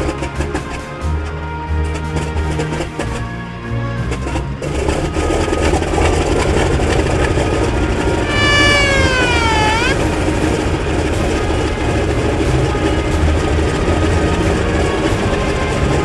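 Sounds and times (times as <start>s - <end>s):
radial aircraft engine rumble: 0.0s - 16.0s
high whine sliding in pitch: 5.1s - 10.9s.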